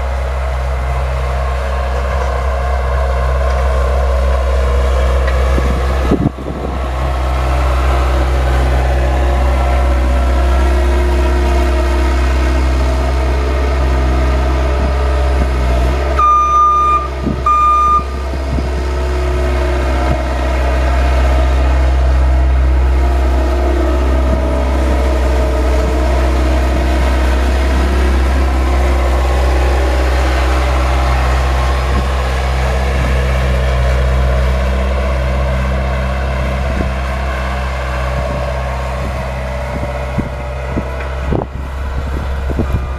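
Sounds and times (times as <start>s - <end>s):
snowplow engine running: 0.0s - 42.9s
short electronic beeps: 16.2s - 18.1s.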